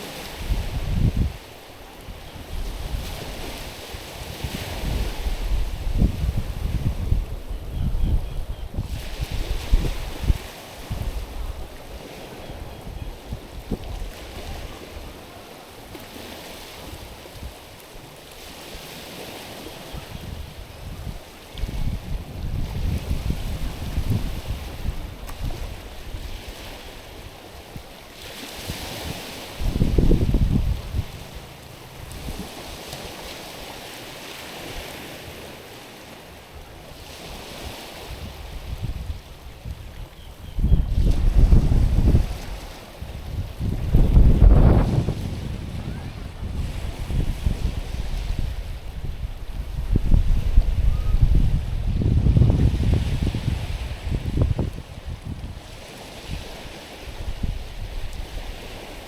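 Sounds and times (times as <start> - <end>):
wind buffeting microphone: 0.0 - 1.5, 2.1 - 15.4, 19.1 - 33.3, 36.9 - 59.0
waves washing over pebbles: 0.0 - 6.9, 40.9 - 50.8.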